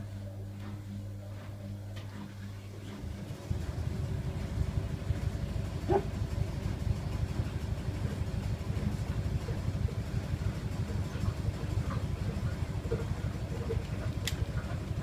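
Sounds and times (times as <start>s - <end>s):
hairdryer running: 3.0s - 10.2s.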